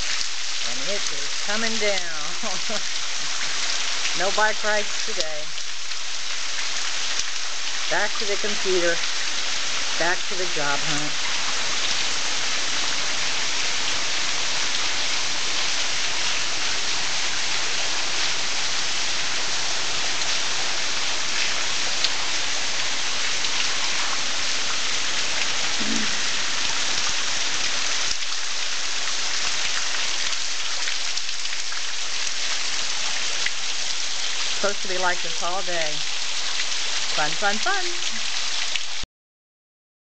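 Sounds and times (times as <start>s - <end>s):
raindrops ticking: 0.0s - 11.3s, 25.2s - 39.0s
heavy rain pattering: 0.0s - 39.0s.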